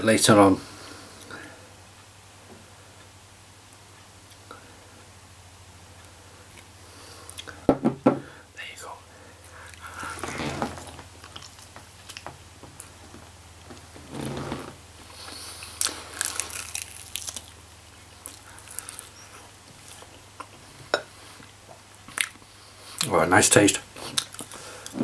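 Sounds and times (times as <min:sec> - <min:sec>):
low steady hum: 0:00.0 - 0:25.0
person chewing and biting: 0:15.3 - 0:17.6, 0:18.2 - 0:20.6.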